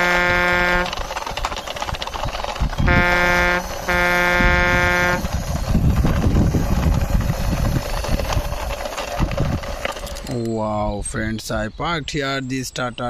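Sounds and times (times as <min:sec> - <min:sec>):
truck horn blasts: 0:00.0 - 0:01.0, 0:02.9 - 0:05.3
toy truck wheels rumbling on stone: 0:00.0 - 0:10.9.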